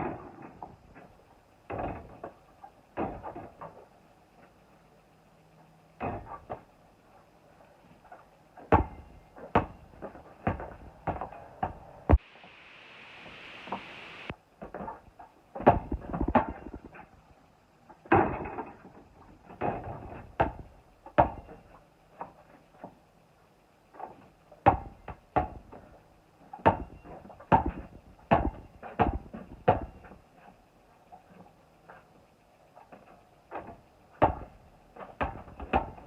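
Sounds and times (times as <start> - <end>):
basketball bouncing on court: 8.7 - 11.8, 15.6 - 16.8, 19.6 - 21.5, 24.6 - 25.8, 26.6 - 30.0, 34.2 - 34.5, 35.2 - 36.0.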